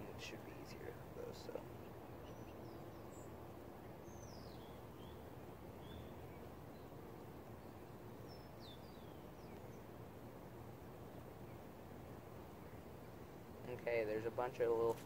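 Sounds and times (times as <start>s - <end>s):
low outdoor background hiss: 0.0s - 15.0s
small birds chirping and whistling: 0.2s - 6.9s, 7.6s - 9.9s.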